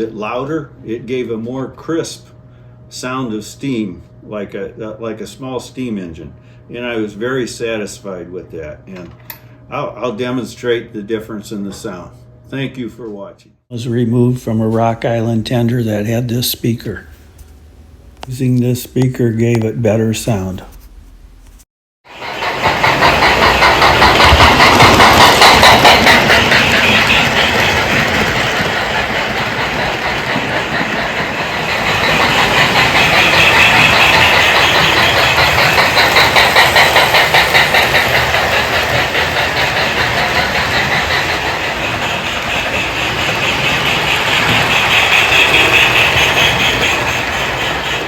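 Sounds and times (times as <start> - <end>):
model train running on track: 13.8 - 17.1, 18.2 - 20.7, 22.1 - 48.0
toy steam train chuffing: 13.8 - 17.5, 18.2 - 20.7, 22.1 - 48.0.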